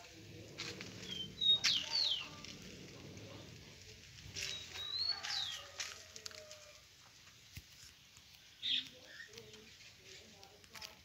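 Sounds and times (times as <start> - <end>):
bird whistled calls: 1.0 - 2.3, 4.4 - 5.6.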